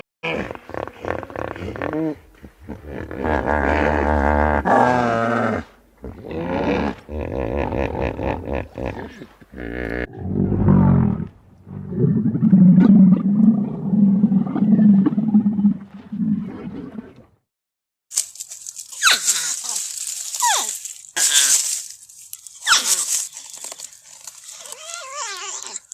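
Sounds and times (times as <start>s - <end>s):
animal cries with wavering pitch: 24.7s - 25.9s.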